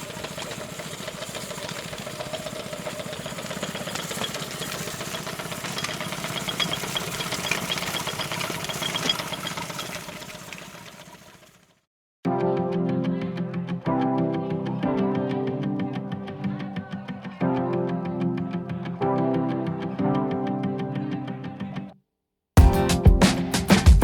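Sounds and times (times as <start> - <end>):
engine running with knocking: 0.0 - 11.8.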